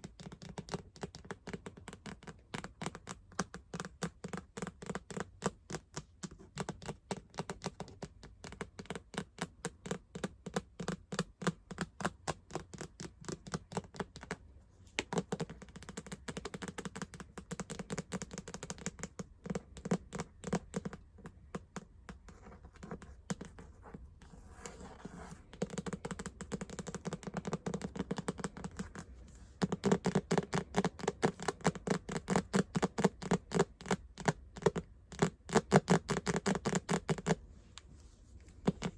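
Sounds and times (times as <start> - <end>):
fast tapping: 15.0 - 37.4.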